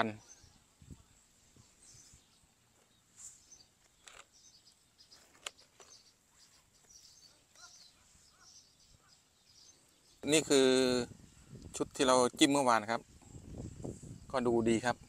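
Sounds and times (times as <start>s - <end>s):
faint bird chirps: 0.0s - 10.6s.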